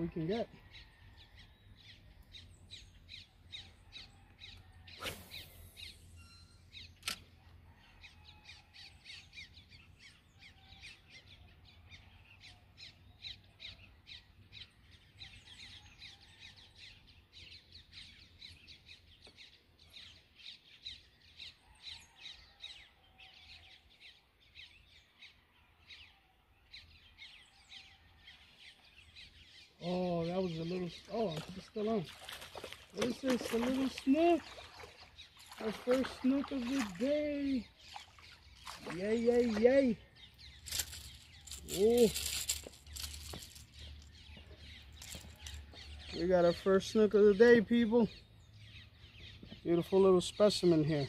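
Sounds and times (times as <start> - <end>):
birds chirping: 0.0 - 51.0
sharp click: 7.0 - 7.2.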